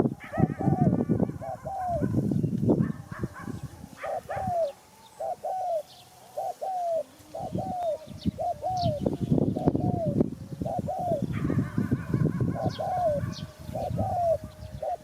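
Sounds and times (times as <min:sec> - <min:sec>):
dove cooing: 0:00.0 - 0:15.0
small birds chirping: 0:00.0 - 0:15.0.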